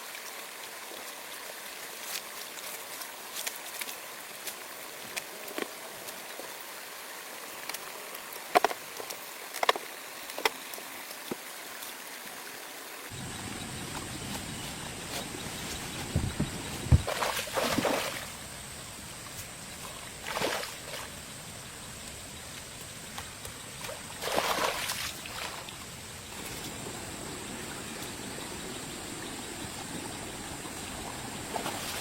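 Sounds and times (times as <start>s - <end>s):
steady background hiss: 0.0s - 32.0s
water splashing and sloshing: 13.1s - 18.5s, 19.2s - 21.2s, 22.0s - 32.0s.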